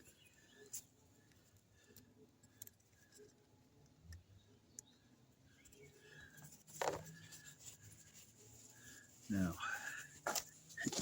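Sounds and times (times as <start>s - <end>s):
faint clicks of small parts: 0.0s - 5.0s.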